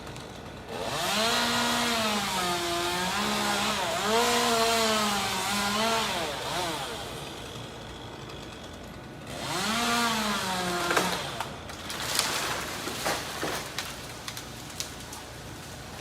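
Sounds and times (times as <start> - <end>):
chainsaw revving: 0.0 - 13.8
wood knocking and cracking: 10.7 - 15.2.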